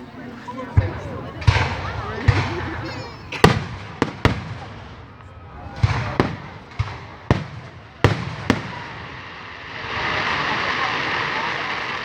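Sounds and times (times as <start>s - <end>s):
fireworks banging: 0.0s - 12.0s
fireworks crackle: 0.0s - 12.0s.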